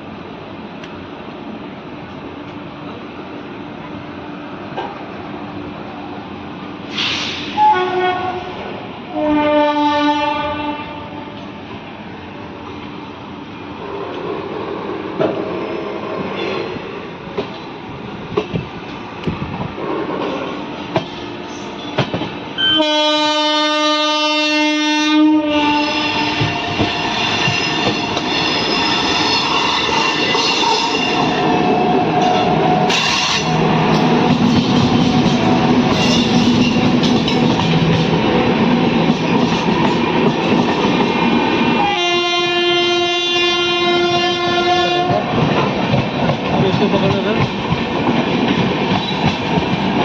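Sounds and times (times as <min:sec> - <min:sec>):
train rumbling past: 0:00.0 - 0:50.0
train horn blasts: 0:07.5 - 0:11.5, 0:22.6 - 0:26.9, 0:41.8 - 0:45.2
wheels clattering on rails: 0:32.2 - 0:41.3, 0:45.0 - 0:50.0.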